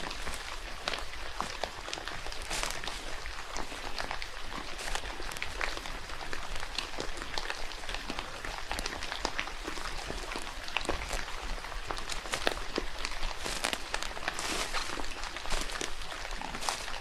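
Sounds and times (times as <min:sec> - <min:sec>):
steady rain pattering: 0:00.0 - 0:17.0.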